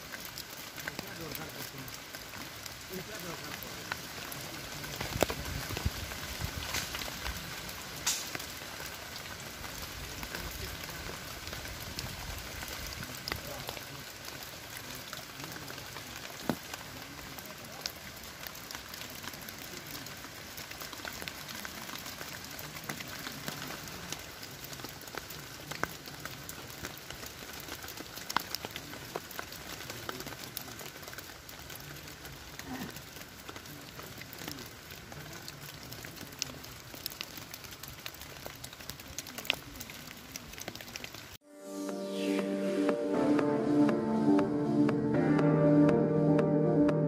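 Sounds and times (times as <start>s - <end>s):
rain falling on leaves: 0.0s - 44.6s.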